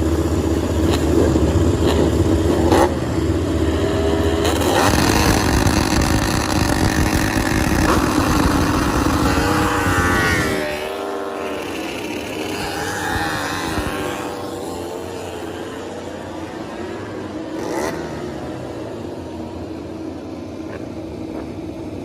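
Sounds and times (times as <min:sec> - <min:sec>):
racing motorcycle engines revving: 0:00.0 - 0:22.0.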